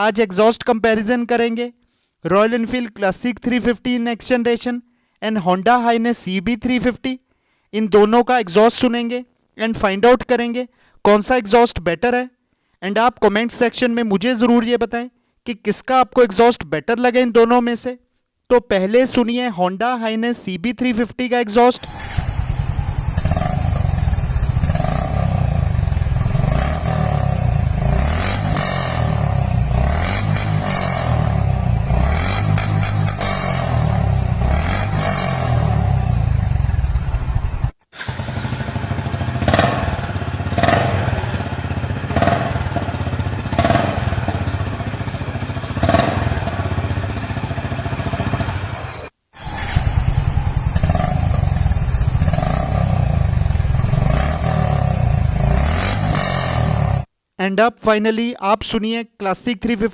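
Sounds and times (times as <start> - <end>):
motorcycle engine running: 21.8 - 57.1
motorcycle throttle revs: 21.8 - 57.1.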